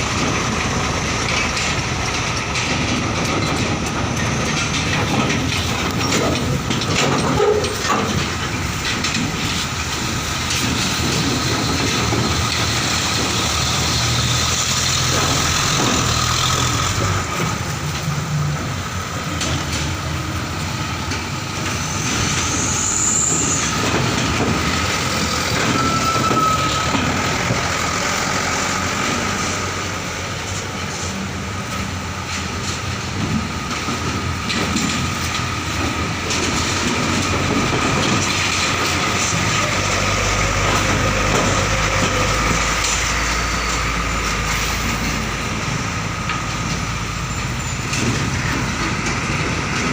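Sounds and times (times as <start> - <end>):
truck engines running: 0.0 - 49.9
trucks rattling over steel ramp: 0.0 - 49.9
brief squeal: 21.8 - 23.8, 25.2 - 27.0.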